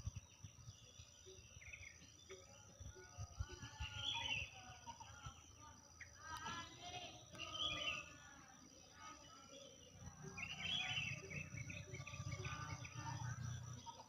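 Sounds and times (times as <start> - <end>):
small birds chirping and singing: 0.0 - 14.0.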